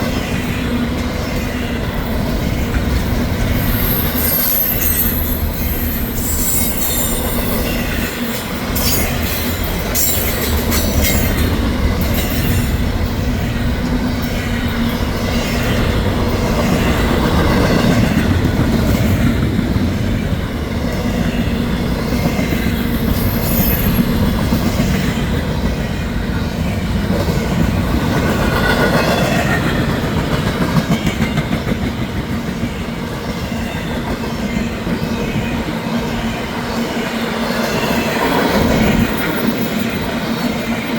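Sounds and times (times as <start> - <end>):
train wheels rumbling on rails: 0.0 - 40.9
high wheel squeals: 3.5 - 11.4, 22.7 - 24.4.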